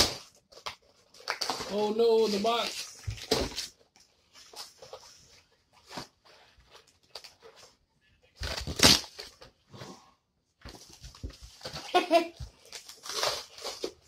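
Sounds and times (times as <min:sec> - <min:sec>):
cardboard box tearing and crinkling: 0:00.0 - 0:03.8, 0:08.4 - 0:09.4, 0:11.6 - 0:14.0.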